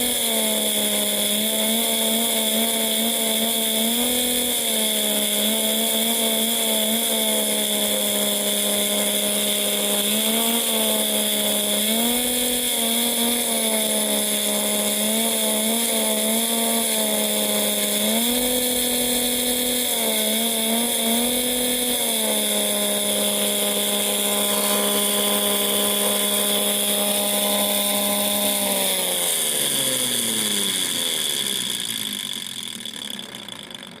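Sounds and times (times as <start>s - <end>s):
steady high whine: 0.0s - 34.0s
toy vacuum engine buzzing: 0.0s - 34.0s.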